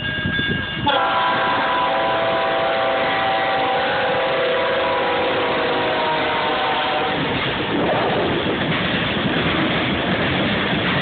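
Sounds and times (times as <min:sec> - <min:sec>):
low rumble of train: 0:00.0 - 0:11.0
locomotive air horn: 0:00.8 - 0:07.3.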